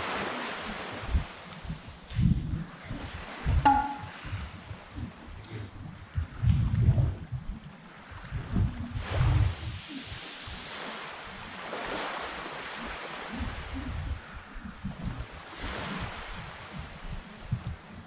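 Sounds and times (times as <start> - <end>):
sea waves washing in: 0.0 - 4.2, 7.7 - 17.4
wind buffeting microphone: 0.0 - 18.0.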